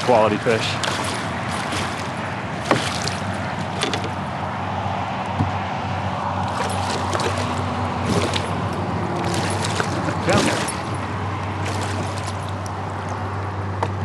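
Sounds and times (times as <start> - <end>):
small water splashes: 0.0 - 4.3, 6.2 - 13.6
highway traffic noise: 0.0 - 14.0
short knocks: 0.8 - 4.2.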